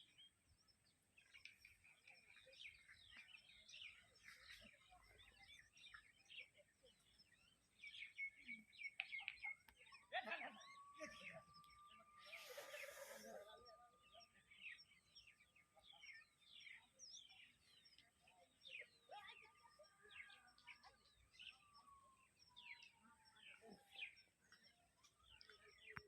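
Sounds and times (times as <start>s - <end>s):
small birds chirping: 0.0s - 26.0s
faint steady high tone: 9.7s - 18.4s.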